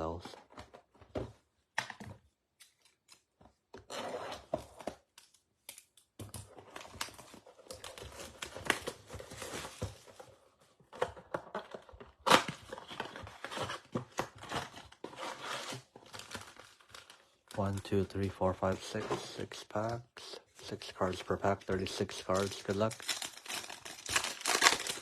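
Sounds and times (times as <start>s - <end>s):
plastic wrapping tearing and crinkling: 22.3s - 25.0s.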